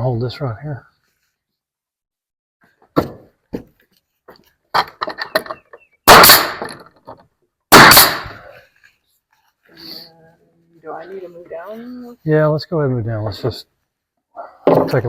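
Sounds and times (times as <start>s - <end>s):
nail gun firing: 6.1s - 6.8s, 7.7s - 8.4s.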